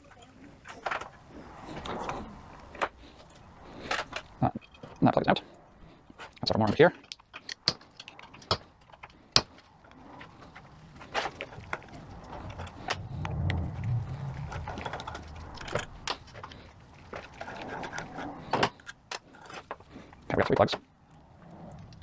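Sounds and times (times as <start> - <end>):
small metal parts clinking: 2.8 - 5.4, 6.1 - 9.5
soft low handling rumble: 9.7 - 18.8.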